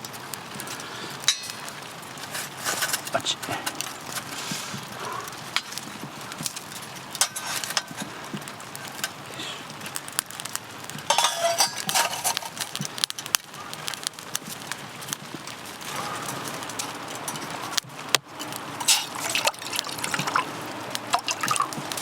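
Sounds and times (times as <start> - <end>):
steady hiss: 0.0 - 22.0
camp gear clicking and clinking: 0.7 - 8.1, 11.0 - 13.1, 15.9 - 22.0.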